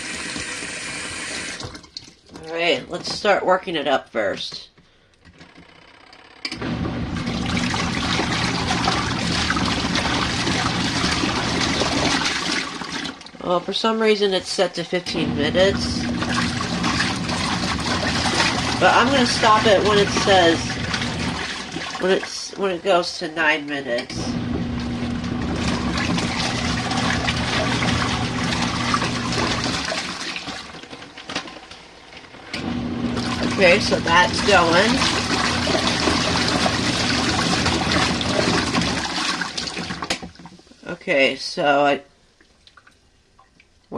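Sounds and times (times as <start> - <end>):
washing machine water sloshing: 0.0 - 3.4, 6.5 - 40.8, 42.4 - 43.8
low motor hum: 6.5 - 12.2, 15.0 - 22.0, 24.0 - 29.9, 32.5 - 39.0.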